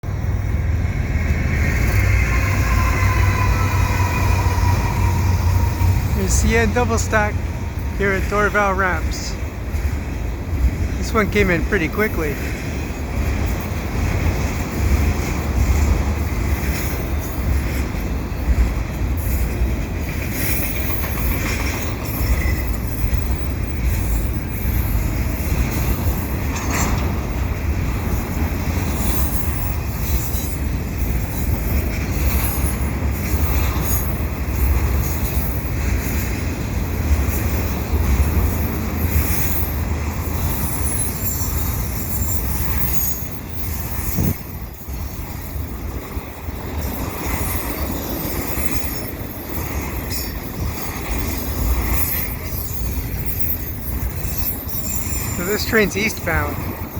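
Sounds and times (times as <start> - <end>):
freight train wheels rumbling: 0.0 - 56.9
high-pitched wheel squeal: 1.6 - 8.0, 51.9 - 55.8.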